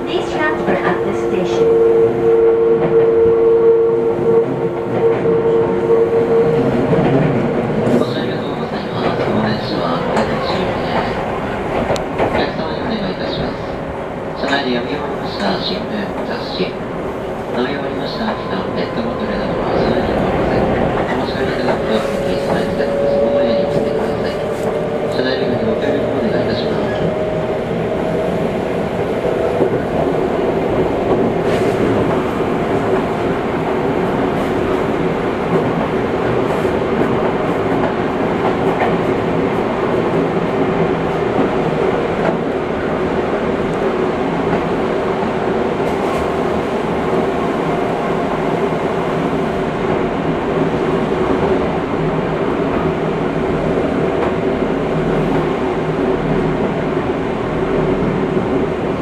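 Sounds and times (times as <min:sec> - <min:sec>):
rail joint clicks: 0:04.3 - 0:13.6, 0:17.4 - 0:56.8.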